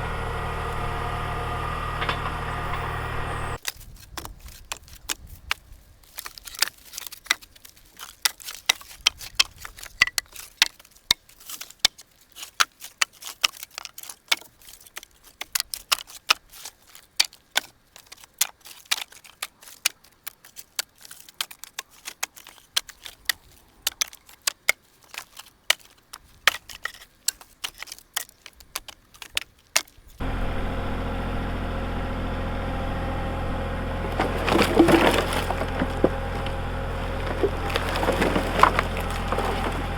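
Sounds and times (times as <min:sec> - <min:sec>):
steady motor: 0:00.0 - 0:03.6, 0:30.2 - 0:39.9
wood pieces knocking together: 0:33.9 - 0:39.9.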